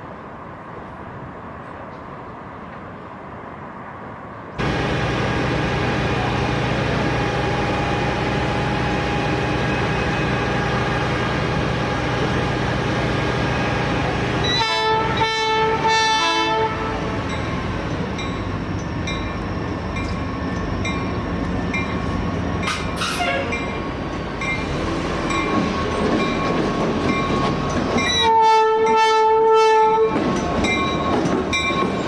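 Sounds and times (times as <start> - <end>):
diesel locomotive engine running: 4.6 - 28.2
locomotive air horn blasts: 14.4 - 17.3, 22.7 - 23.6, 28.2 - 30.2.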